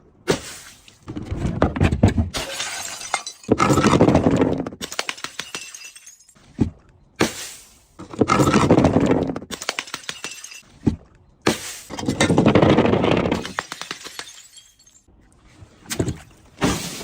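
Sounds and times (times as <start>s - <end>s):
glass crushing and shattering: 2.4s - 6.4s, 8.2s - 10.7s, 13.2s - 15.1s.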